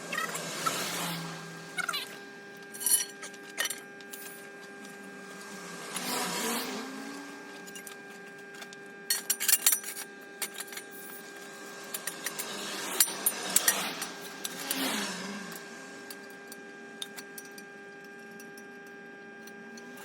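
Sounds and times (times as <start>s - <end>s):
steel pieces clinking: 2.7s - 4.5s, 7.5s - 16.3s.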